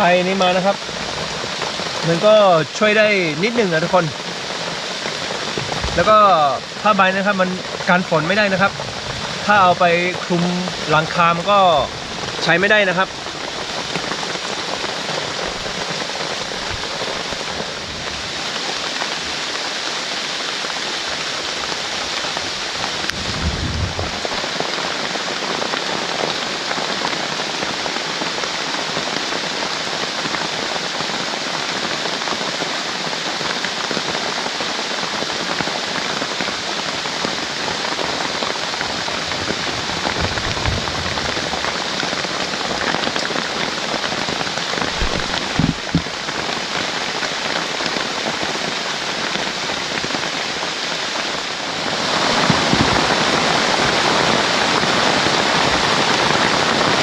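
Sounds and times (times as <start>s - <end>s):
rain falling: 0.0s - 57.0s
low thumps: 5.5s - 6.2s, 23.1s - 24.4s, 39.5s - 41.6s, 44.8s - 46.2s.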